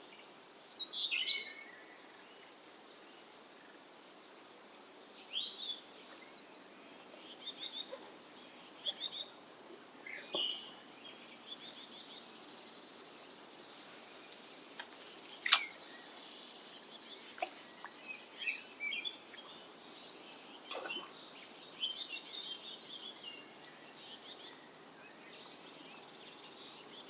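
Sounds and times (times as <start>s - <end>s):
background hiss: 0.0s - 27.0s
small birds chirping and trilling: 0.0s - 27.0s
sharp click: 14.8s - 15.8s.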